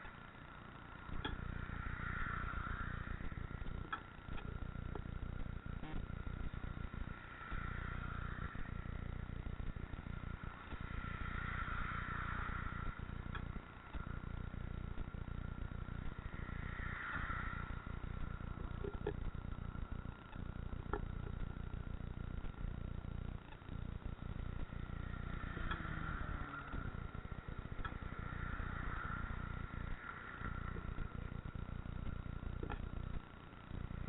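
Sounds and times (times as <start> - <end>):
faint steady whine: 0.0 - 34.0
road noise: 0.0 - 34.0
wind rumble: 0.8 - 33.2.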